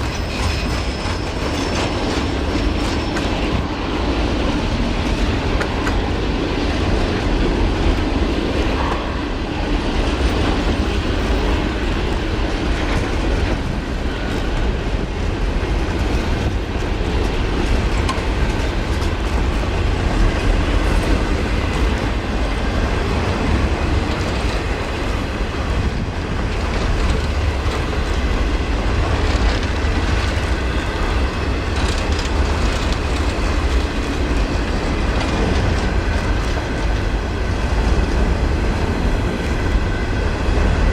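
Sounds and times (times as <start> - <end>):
freight train wheels on rails: 0.0 - 40.9.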